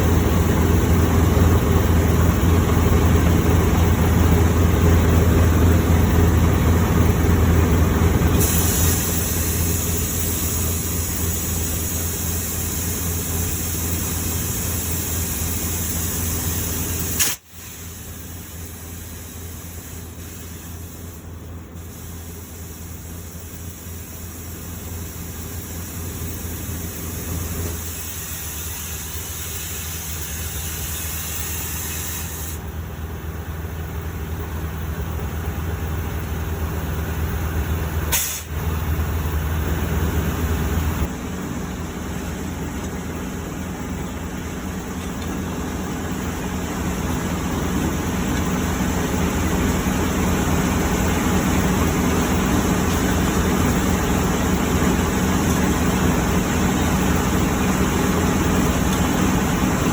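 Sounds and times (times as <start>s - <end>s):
truck engine running: 0.0s - 59.9s
air hissing: 8.3s - 32.6s, 38.0s - 38.7s
sharp click: 17.1s - 17.6s.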